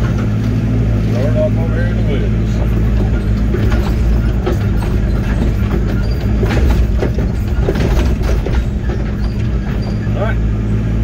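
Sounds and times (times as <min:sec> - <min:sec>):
excavator diesel engine running: 0:00.0 - 0:11.0
bucket knocks and clanks: 0:02.5 - 0:10.1.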